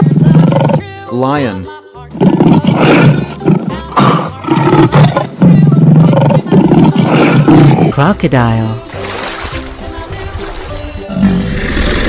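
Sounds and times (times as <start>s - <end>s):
lion roaring: 2.1s - 7.9s.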